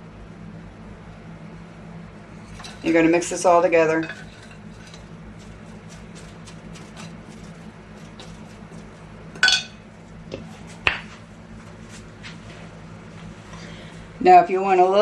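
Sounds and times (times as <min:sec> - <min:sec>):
utensil stirring dry mix in bowl: 0:02.4 - 0:13.5
utensil clinking against bowl: 0:04.0 - 0:09.9.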